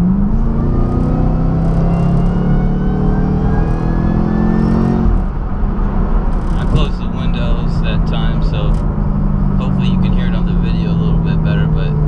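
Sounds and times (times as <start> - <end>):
car engine accelerating: 0.0 - 12.0
supercharger whine: 0.0 - 12.0.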